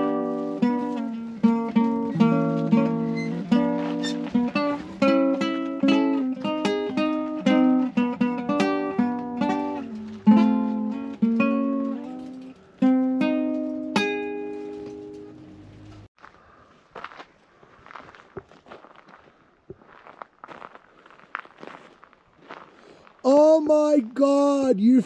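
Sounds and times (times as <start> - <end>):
acoustic guitar picking melody: 0.0 - 16.1.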